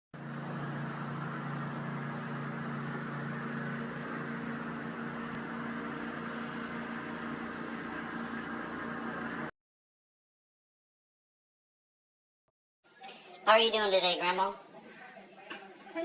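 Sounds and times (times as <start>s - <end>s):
motor hum: 0.2s - 9.5s.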